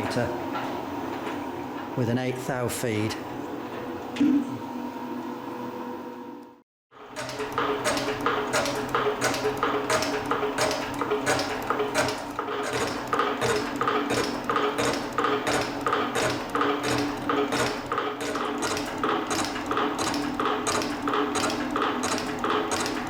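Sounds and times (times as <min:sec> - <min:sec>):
steady motor hum: 0:00.0 - 0:23.0
metal shaper ram clatter: 0:07.2 - 0:23.0.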